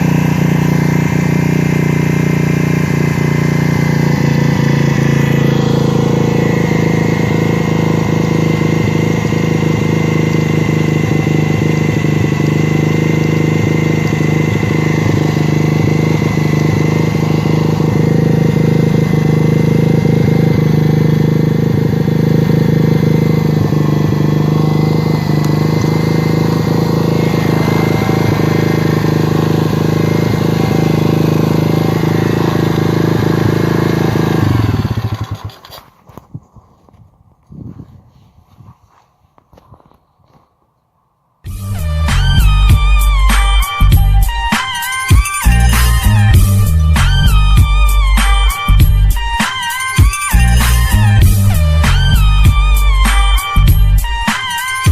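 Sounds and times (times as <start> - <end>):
dirt bike engine idling: 0.0 - 37.0, 41.5 - 54.9.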